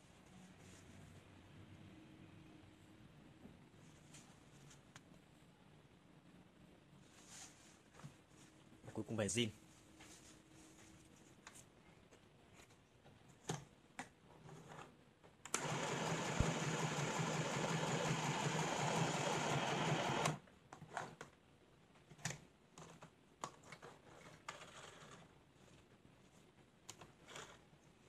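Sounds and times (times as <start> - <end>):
sewing machine stitching: 15.5 - 21.1.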